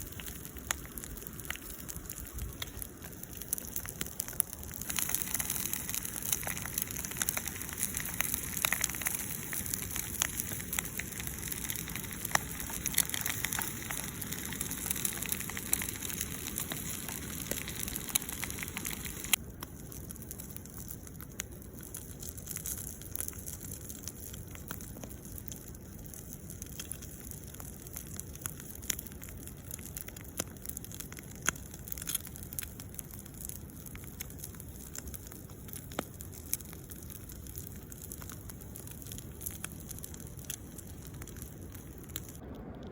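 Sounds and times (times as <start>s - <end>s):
campfire crackling and popping: 0.0s - 42.9s
steady hiss: 4.8s - 19.4s.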